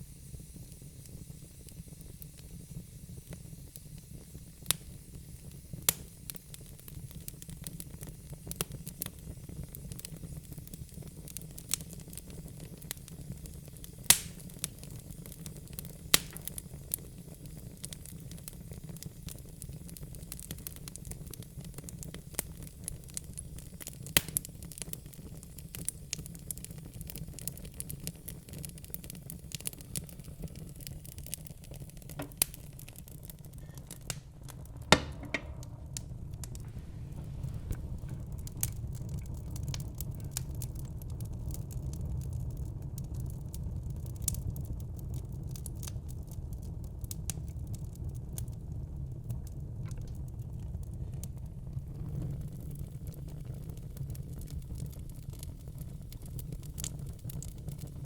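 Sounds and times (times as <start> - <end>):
low rumble of burning wood: 0.0 - 58.0
log fire pops and snaps: 0.3 - 58.0.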